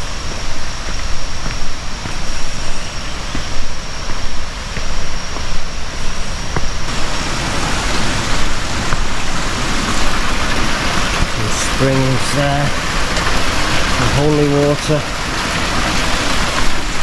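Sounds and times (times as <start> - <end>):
loud uneven rushing noise: 6.2 - 17.0.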